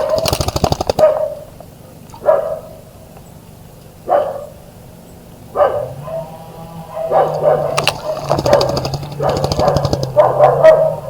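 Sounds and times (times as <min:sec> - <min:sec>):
dog barking: 0:00.0 - 0:00.4, 0:01.0 - 0:01.5, 0:02.2 - 0:02.9, 0:04.0 - 0:04.6, 0:05.5 - 0:11.0
steady low hum: 0:00.0 - 0:11.0.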